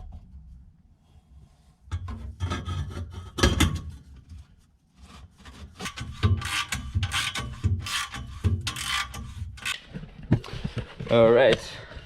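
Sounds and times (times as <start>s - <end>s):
metal exhaust pipe scraping: 1.6s - 10.0s.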